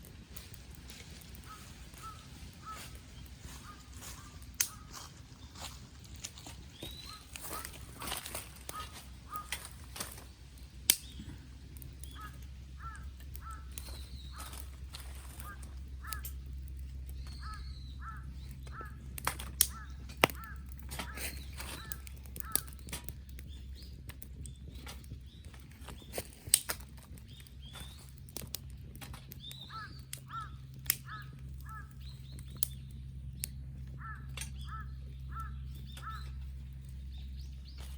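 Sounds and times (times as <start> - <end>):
campfire pops and cracks: 0.0 - 37.9
steady low hum: 0.0 - 37.9
crows cawing: 1.2 - 5.7, 6.3 - 10.2, 11.1 - 23.4, 29.5 - 32.1, 33.8 - 36.8.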